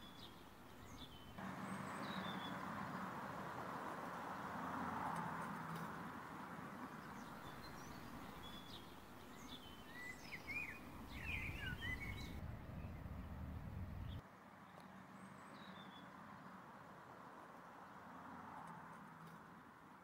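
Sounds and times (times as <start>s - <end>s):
birds chirping: 0.0s - 3.7s, 5.5s - 14.2s
low rumble: 12.3s - 14.2s.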